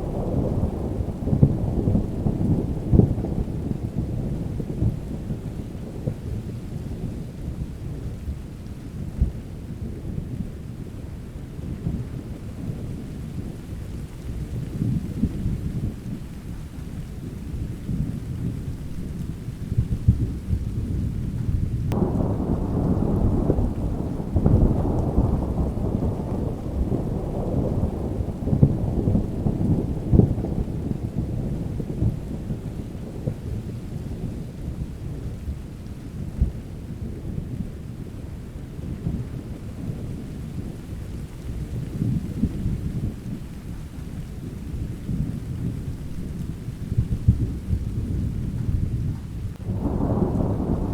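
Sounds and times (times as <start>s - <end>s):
rolling thunder: 0.0s - 16.3s, 17.3s - 50.9s
steady rain: 0.0s - 50.9s
thunderclap: 17.9s - 35.5s, 44.7s - 50.9s.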